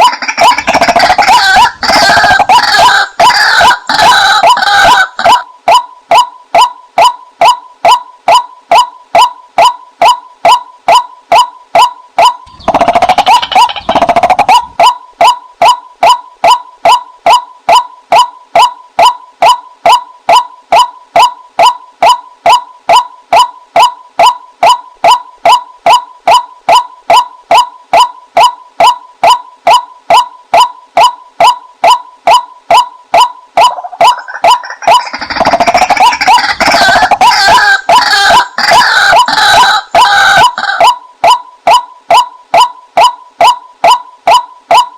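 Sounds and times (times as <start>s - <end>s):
waterhen calling: 0.0s - 6.2s, 12.5s - 15.3s, 33.6s - 42.7s.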